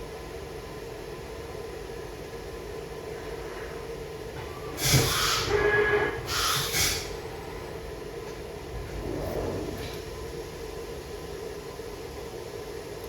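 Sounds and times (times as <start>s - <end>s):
hissing bursts: 4.8s - 7.2s
steady low hum: 7.0s - 13.0s.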